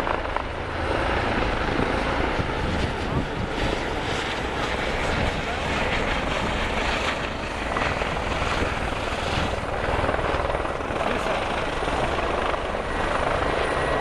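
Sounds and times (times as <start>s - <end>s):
helicopter rotor chop: 0.0s - 14.0s
helicopter turbine whine: 0.0s - 14.0s.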